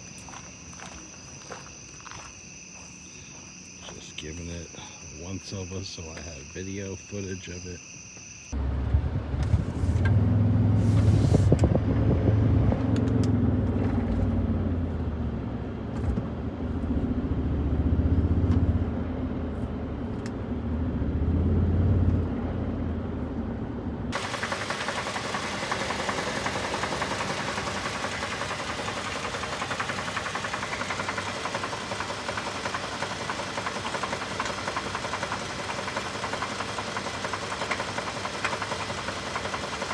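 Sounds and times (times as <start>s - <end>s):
engine running rough: 8.6s - 39.9s
engine clatter with knock: 11.5s - 15.0s, 24.1s - 39.9s.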